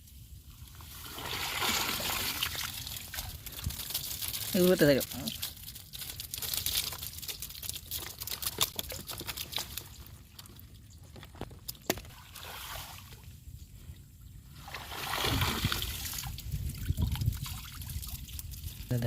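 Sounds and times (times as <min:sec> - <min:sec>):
water splashing and trickling: 0:00.5 - 0:19.0.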